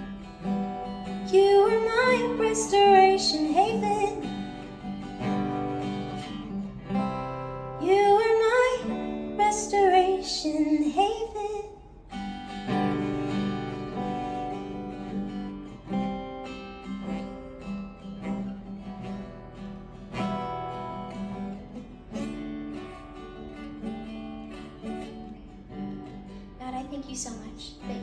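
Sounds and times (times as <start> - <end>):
acoustic guitar strumming chords: 0.0 - 28.0.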